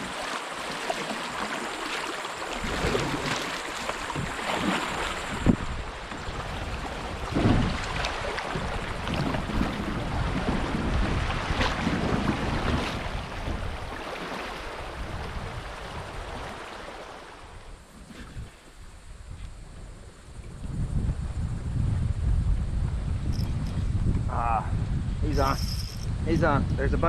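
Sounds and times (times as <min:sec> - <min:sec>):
river water rushing and splashing: 0:00.0 - 0:18.4.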